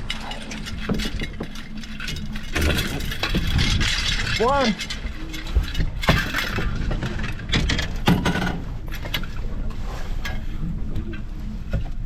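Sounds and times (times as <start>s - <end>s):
knocks and clinks of gear: 0.0s - 9.4s
wind noise: 0.0s - 12.0s.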